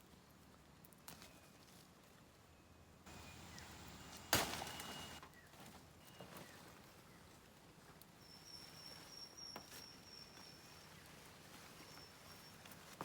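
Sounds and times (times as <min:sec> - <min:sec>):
thin high whistle: 0:03.1 - 0:05.2.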